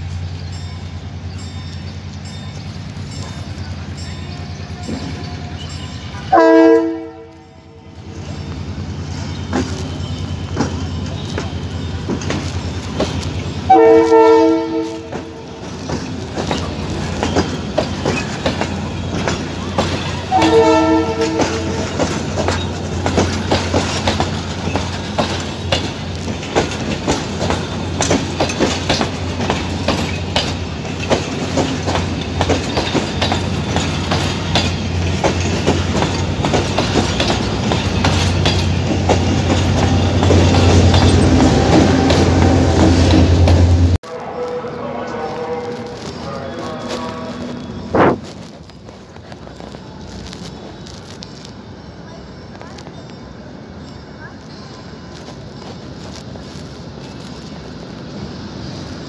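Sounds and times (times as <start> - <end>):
diesel locomotive engine drone: 0.0 - 59.0
train horn blasts: 6.3 - 7.9, 13.7 - 15.6, 20.2 - 22.1, 41.2 - 48.3
train wheels clacking over rails: 8.1 - 44.0.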